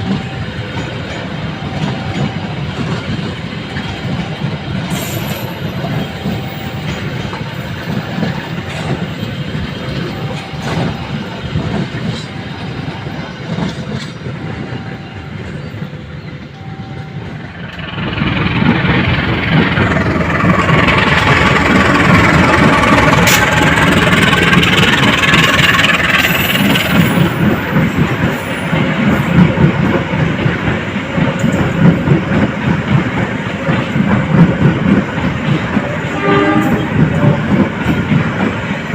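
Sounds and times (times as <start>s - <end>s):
train wheels on rails: 0.0s - 38.9s
faint short beep: 16.6s - 17.4s.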